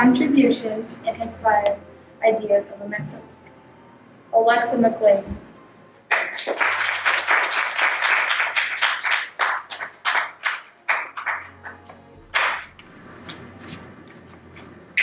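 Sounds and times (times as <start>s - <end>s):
group clapping: 6.1s - 13.5s.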